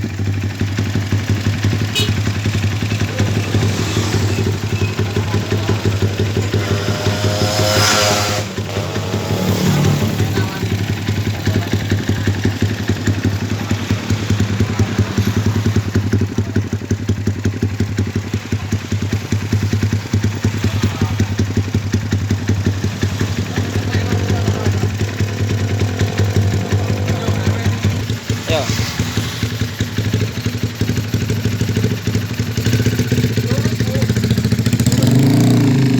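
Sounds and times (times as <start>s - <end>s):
motorcycle engine revving: 0.0s - 35.9s
motorcycle exhaust idling: 0.0s - 35.9s.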